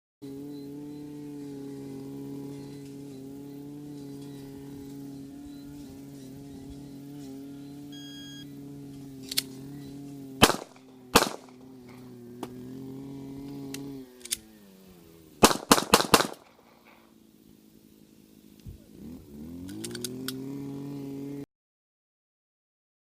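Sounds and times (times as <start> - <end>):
engine-like hum: 0.2 - 21.5
shot timer beep: 7.9 - 8.4
pistol shots: 10.4 - 12.0, 15.4 - 17.0.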